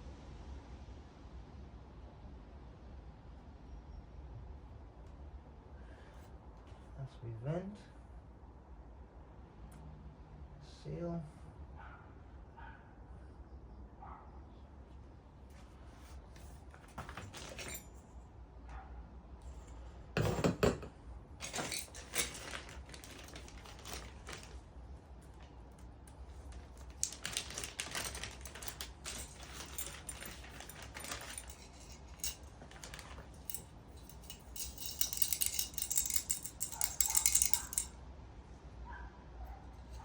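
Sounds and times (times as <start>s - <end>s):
parts and packaging clicking: 21.4s - 24.6s, 25.2s - 37.9s
hissy rustle of packaging: 21.5s - 33.9s.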